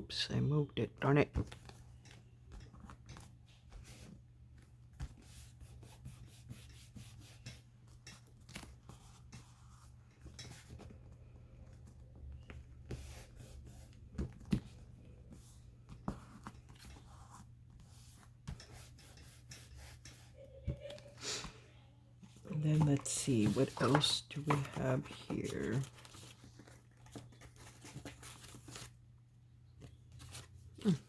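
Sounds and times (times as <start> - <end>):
paper rustling and scraping: 22.5 - 29.0.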